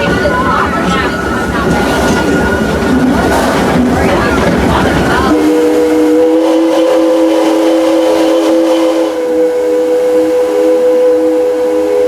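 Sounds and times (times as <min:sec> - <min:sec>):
moving train hiss and rumble: 0:00.0 - 0:12.0
chime steam whistle blast: 0:05.3 - 0:12.0.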